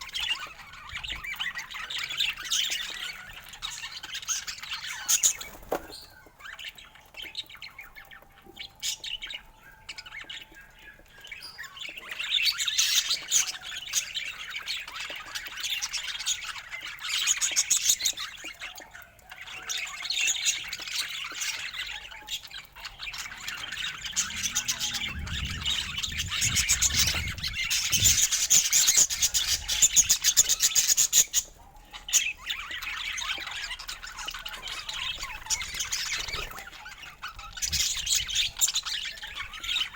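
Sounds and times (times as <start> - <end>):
budgerigars chattering: 8.8 - 39.9.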